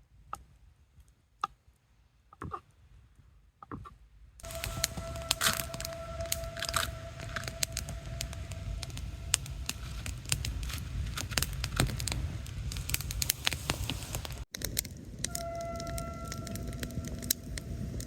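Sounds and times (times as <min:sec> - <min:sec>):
thin whistling tone: 0:04.4 - 0:11.1, 0:15.3 - 0:18.0
campfire crackling and popping: 0:04.4 - 0:18.0.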